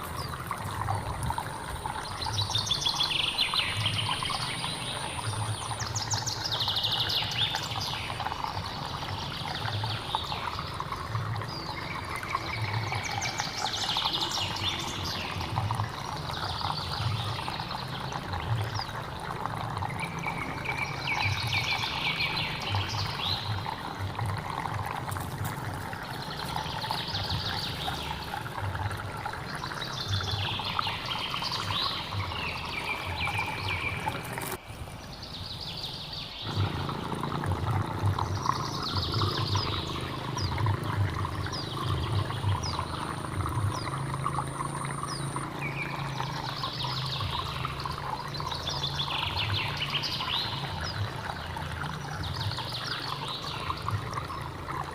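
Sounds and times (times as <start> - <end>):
stream water trickling: 0.0 - 54.9
bird singing: 1.9 - 19.0, 19.8 - 23.7, 29.5 - 34.6, 38.0 - 54.4.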